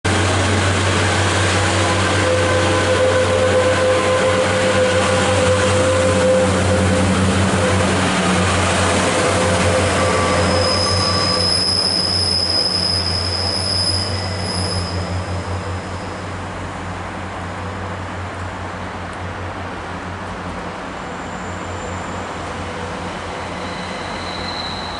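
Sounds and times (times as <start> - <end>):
high wheel squeal: 2.0 - 16.4, 20.9 - 24.9.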